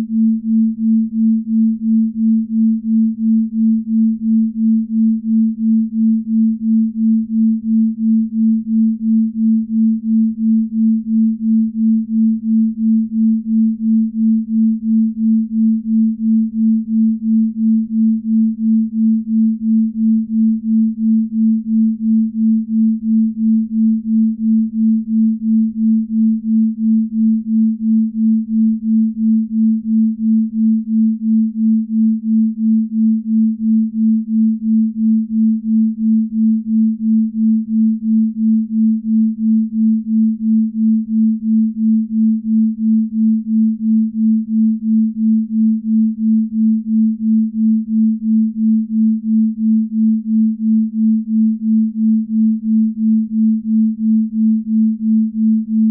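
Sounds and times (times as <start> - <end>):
pulsing pure sine tone: 0.0 - 55.9.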